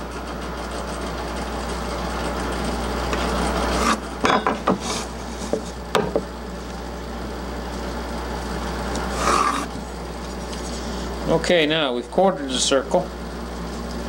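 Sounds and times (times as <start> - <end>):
steady low hum: 0.0 - 14.0
pencil scraping on paper: 3.6 - 4.1, 9.1 - 9.7.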